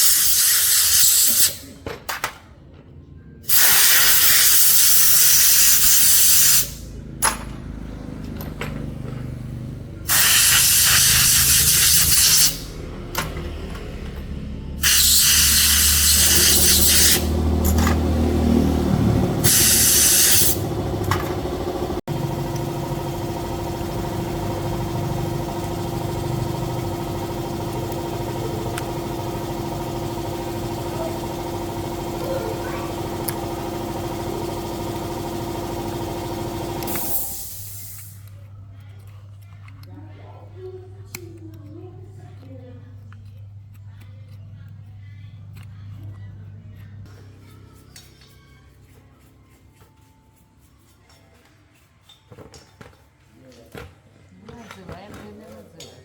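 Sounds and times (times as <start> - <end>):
hissing spray bursts: 0.0 - 1.6, 3.5 - 6.8, 10.1 - 12.7, 14.8 - 17.3, 19.4 - 20.6, 36.8 - 38.2
motorcycle engine idling: 17.2 - 36.8.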